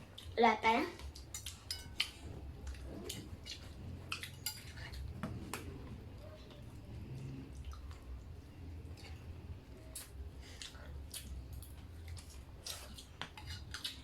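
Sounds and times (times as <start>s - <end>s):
low steady hum: 0.0s - 14.0s
plates and utensils clinking: 1.4s - 5.7s.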